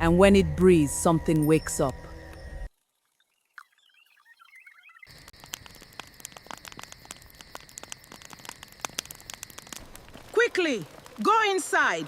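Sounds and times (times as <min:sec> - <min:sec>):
crackling patter of clicks: 0:02.3 - 0:03.9, 0:05.0 - 0:12.0.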